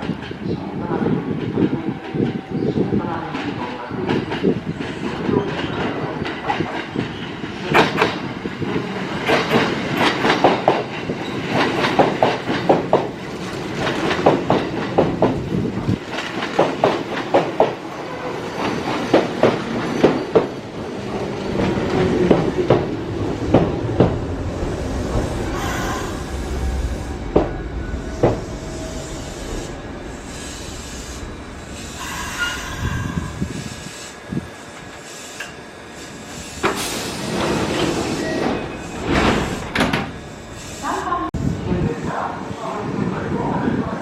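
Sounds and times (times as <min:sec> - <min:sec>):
train rumble: 0:00.0 - 0:44.0
train wheels clacking: 0:04.1 - 0:20.6, 0:25.1 - 0:33.9.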